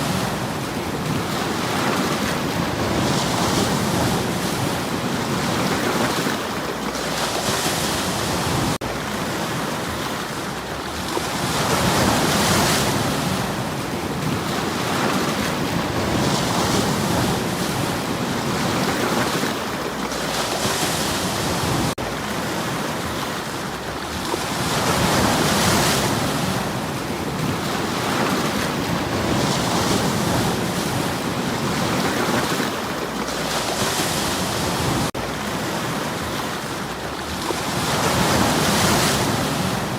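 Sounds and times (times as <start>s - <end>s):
waves washing over stones: 0.0s - 39.9s.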